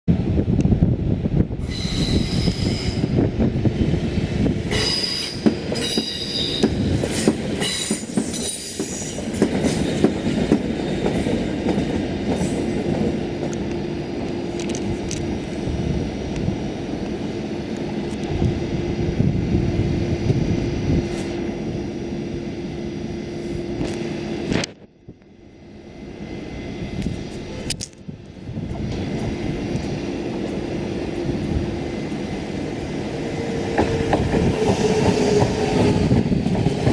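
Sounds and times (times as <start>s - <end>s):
train rolling and braking: 0.1s - 36.9s
wheels and brakes squealing: 1.6s - 3.1s, 4.7s - 9.2s.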